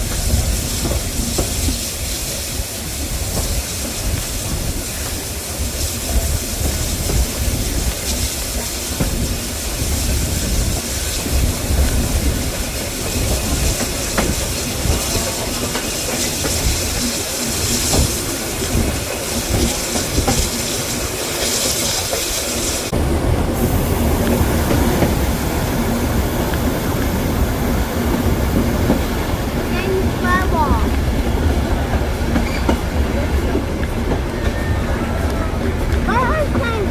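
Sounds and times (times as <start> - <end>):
train rumbling: 0.0 - 36.9
wheels clicking over rail joints: 6.1 - 22.8.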